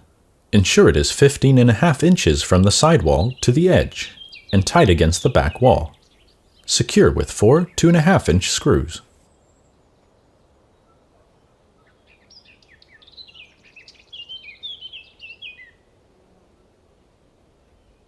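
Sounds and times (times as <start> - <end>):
faint background hiss: 0.0 - 18.0
small bird chirping: 3.1 - 6.7, 11.8 - 15.8.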